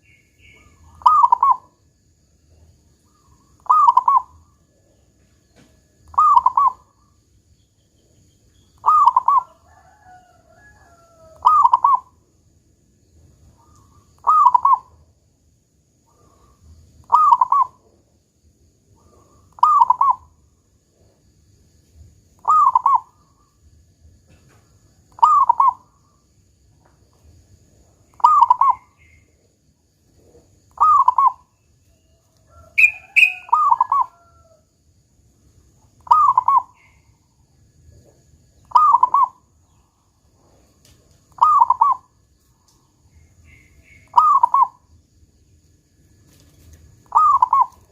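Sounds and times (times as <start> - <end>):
higher-pitched bird call: 0.0 - 1.7, 3.2 - 4.4, 6.1 - 6.9, 8.8 - 9.6, 11.4 - 12.2, 13.6 - 15.0, 17.0 - 17.8, 22.4 - 23.2, 25.2 - 25.9, 28.2 - 29.2, 30.8 - 31.5, 32.7 - 34.3, 36.0 - 37.0, 38.7 - 39.4, 41.4 - 42.1, 43.5 - 44.8, 47.1 - 47.9
dove cooing: 0.0 - 1.8, 3.1 - 4.9, 6.0 - 6.9, 8.8 - 12.2, 13.6 - 15.0, 16.1 - 17.9, 19.0 - 20.4, 22.4 - 23.4, 25.1 - 26.0, 28.1 - 29.3, 30.1 - 31.5, 32.4 - 34.6, 36.0 - 37.0, 38.0 - 39.4, 41.3 - 42.1, 44.0 - 44.8, 47.1 - 47.9.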